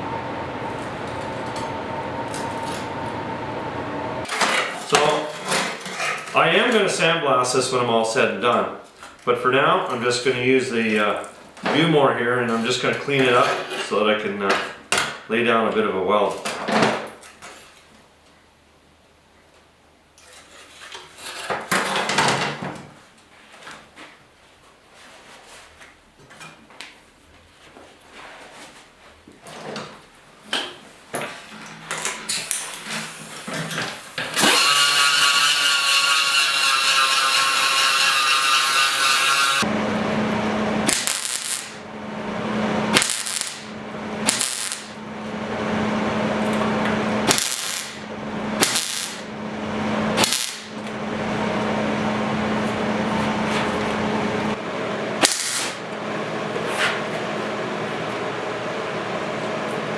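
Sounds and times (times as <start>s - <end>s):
clicks: 0.0s - 4.3s
power grinder whining: 0.0s - 4.3s, 34.2s - 41.8s
grinder scraping metal: 34.2s - 39.7s, 40.8s - 41.8s, 42.9s - 45.0s, 47.3s - 48.0s, 48.6s - 49.3s.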